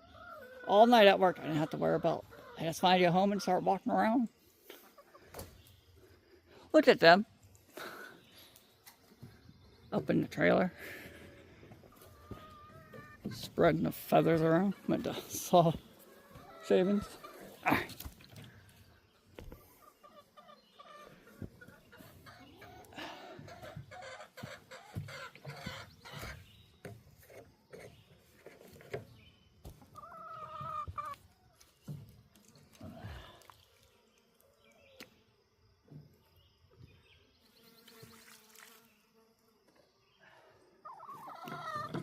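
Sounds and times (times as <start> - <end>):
chicken drawn-out call: 0.0 - 0.7, 11.9 - 13.3, 19.7 - 26.4, 29.9 - 31.2, 40.8 - 42.0
chickens clucking: 0.0 - 5.7, 7.5 - 32.2, 40.8 - 42.0.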